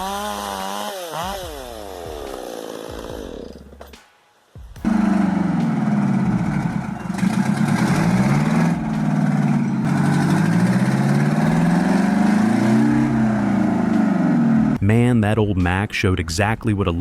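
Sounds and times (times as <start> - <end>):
diesel truck engine revving: 4.8 - 14.8.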